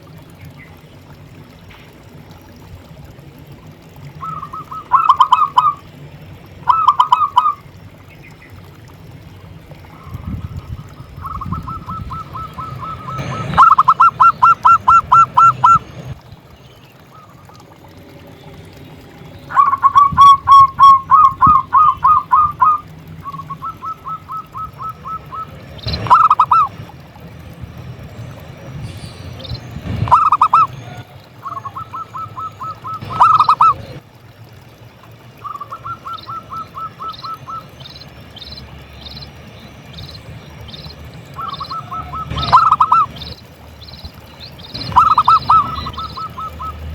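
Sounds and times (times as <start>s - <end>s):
doves cooing: 4.0s - 8.0s, 9.7s - 16.2s, 19.5s - 27.5s, 28.1s - 34.0s, 35.2s - 46.9s.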